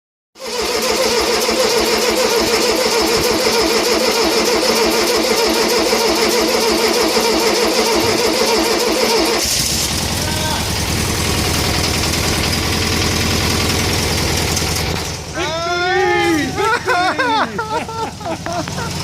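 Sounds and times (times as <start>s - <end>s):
engine starter cranking: 0.4s - 15.4s
engine running low rumble: 7.3s - 19.0s.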